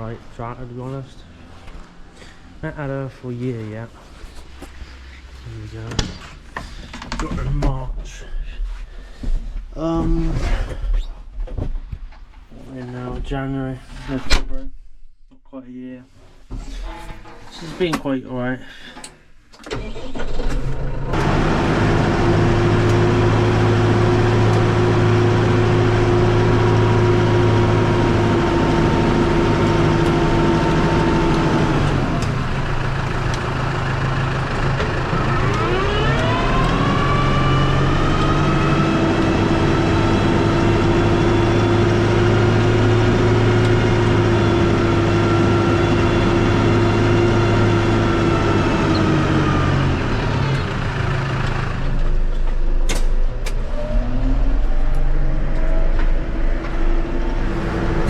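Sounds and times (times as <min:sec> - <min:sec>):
tractor engine whining: 0:19.0 - 0:58.0.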